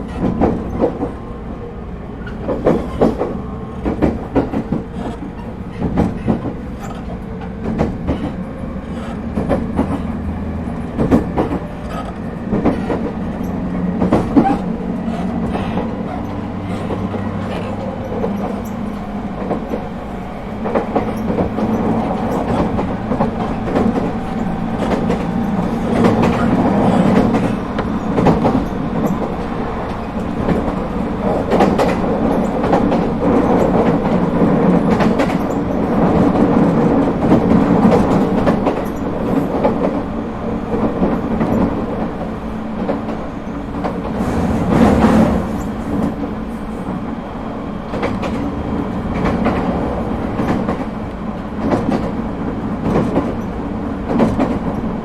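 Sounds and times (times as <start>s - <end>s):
train wheels rumbling on rail: 0.0s - 55.0s
wheels clicking over rail joints: 2.2s - 40.1s.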